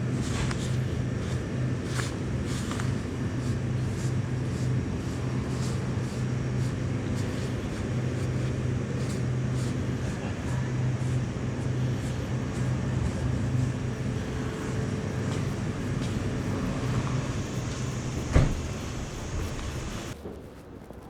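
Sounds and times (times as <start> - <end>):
motorcycle engine humming: 0.0 - 20.2
sharp knock: 18.2 - 18.8.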